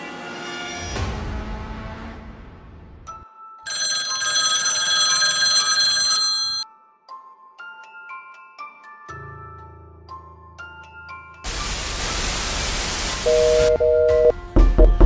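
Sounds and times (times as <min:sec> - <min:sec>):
electronic ringing tone: 0:03.7 - 0:06.6, 0:13.3 - 0:14.3.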